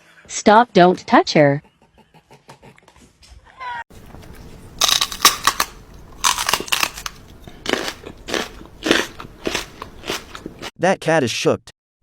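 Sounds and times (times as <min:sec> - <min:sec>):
pet chewing and crunching food: 0:03.9 - 0:10.7.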